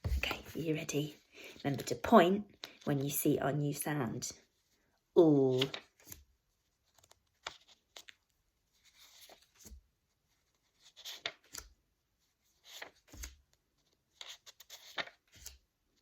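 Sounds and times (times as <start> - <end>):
flashcards sliding and flicking: 2.5 - 2.8, 5.5 - 8.2, 8.8 - 9.8, 10.5 - 11.8, 12.5 - 15.6.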